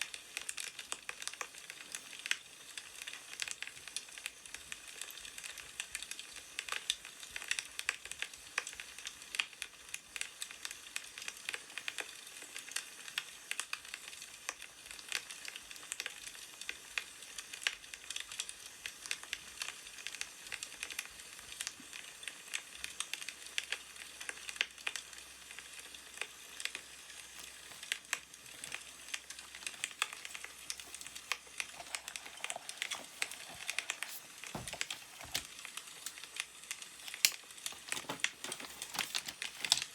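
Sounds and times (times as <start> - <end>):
wood fire crackling: 24.6 - 39.9.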